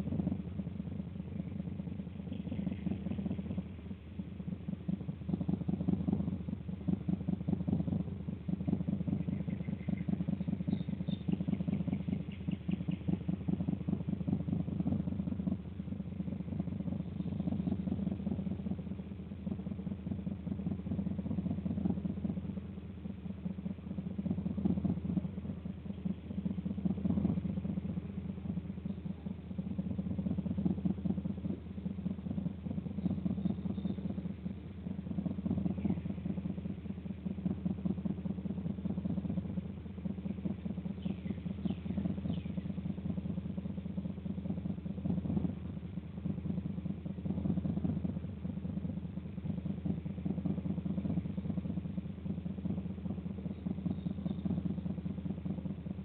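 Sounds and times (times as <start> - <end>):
low engine-like rumble: 0.0 - 56.0
faint bird chirps: 8.8 - 14.1, 32.9 - 34.6, 40.2 - 43.3, 53.4 - 54.7.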